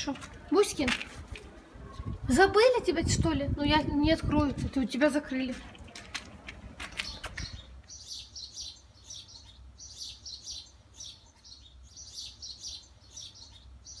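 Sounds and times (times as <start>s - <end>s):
small bird chirping: 6.9s - 14.0s.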